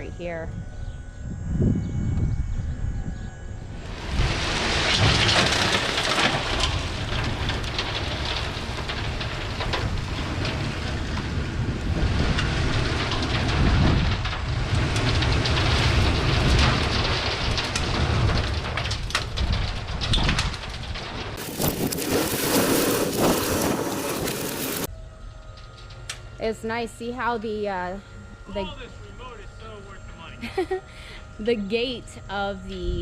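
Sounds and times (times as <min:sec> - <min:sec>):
low rumble: 0:00.0 - 0:33.0
gravel pouring and rattling: 0:03.7 - 0:24.9.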